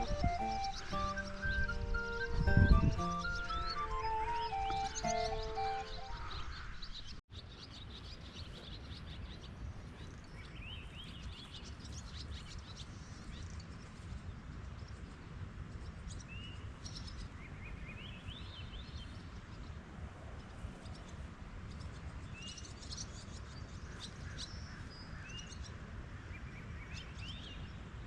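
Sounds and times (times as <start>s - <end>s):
music: 0.0s - 6.4s
small birds chirping: 0.0s - 19.8s
low background noise: 0.0s - 28.0s.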